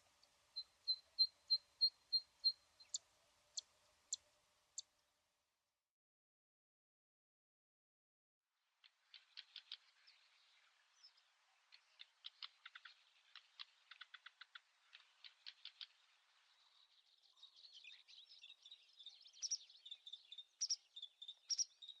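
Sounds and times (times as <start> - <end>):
small birds chirping: 0.0 - 5.0, 8.8 - 22.0.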